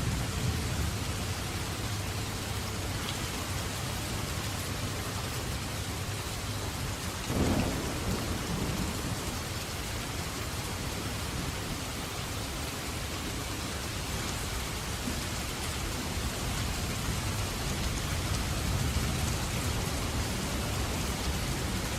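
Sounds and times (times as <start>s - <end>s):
steady rain falling: 0.0s - 21.9s
thunder clap rumbling: 7.3s - 9.8s.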